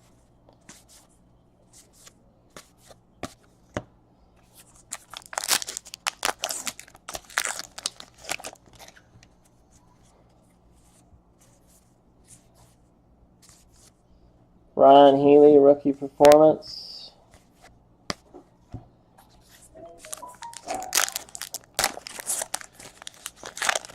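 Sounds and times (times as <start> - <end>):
foil wrapper tearing and crinkling: 4.9 - 9.0, 20.4 - 23.9.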